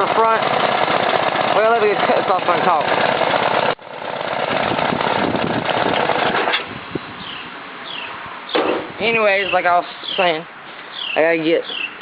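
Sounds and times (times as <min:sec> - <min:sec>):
two-cylinder engine popping: 0:00.0 - 0:06.7
faint bird chirps: 0:07.2 - 0:08.6, 0:09.4 - 0:12.0.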